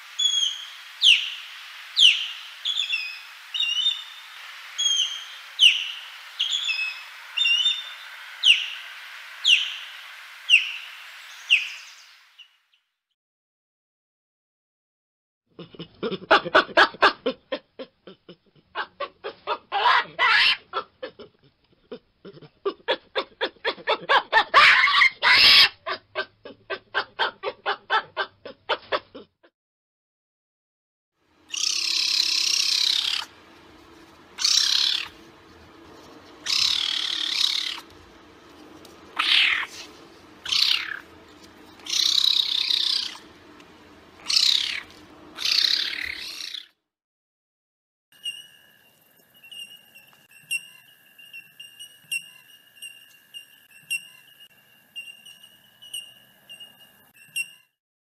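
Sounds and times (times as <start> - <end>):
caracal high-pitched calls: 0.2 - 12.0, 31.5 - 46.7, 49.4 - 57.7
baboons calling in rapid pulses: 18.8 - 20.9, 22.3 - 28.3, 31.5 - 33.5, 34.3 - 35.4, 36.1 - 46.7.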